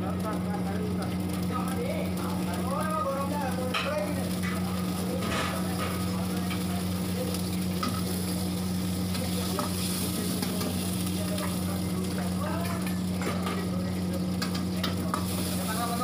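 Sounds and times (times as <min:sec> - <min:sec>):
hot oil sizzling in a wok: 0:00.0 - 0:16.0
ladle stirring in a wok: 0:03.6 - 0:16.0.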